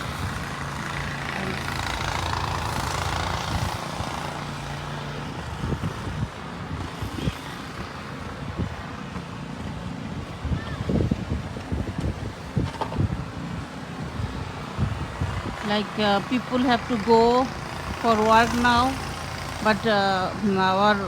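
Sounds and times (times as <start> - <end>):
vehicle engine running: 0.0 - 10.5, 11.2 - 21.0
wind thumps on microphone: 10.2 - 13.3.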